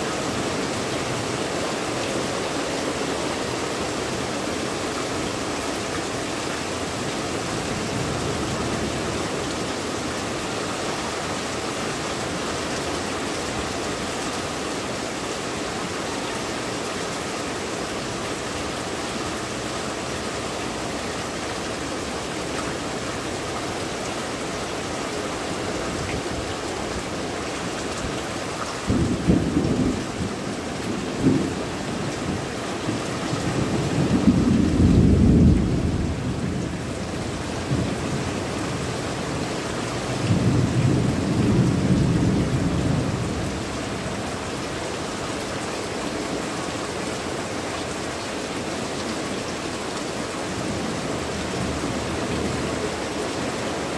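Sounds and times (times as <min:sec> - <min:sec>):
heavy rain: 0:00.0 - 0:53.9
low rumble of thunder: 0:28.8 - 0:38.6, 0:40.0 - 0:43.8.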